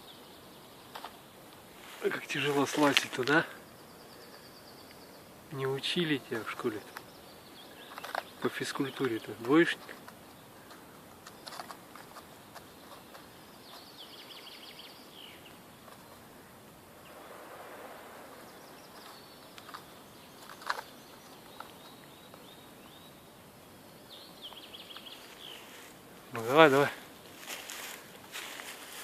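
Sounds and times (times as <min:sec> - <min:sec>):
faint steady hiss: 0:00.0 - 0:29.0
soft clicks and rustles: 0:00.9 - 0:03.4, 0:07.7 - 0:14.0, 0:15.4 - 0:16.3, 0:18.9 - 0:22.5
songbird singing high notes: 0:17.0 - 0:23.2.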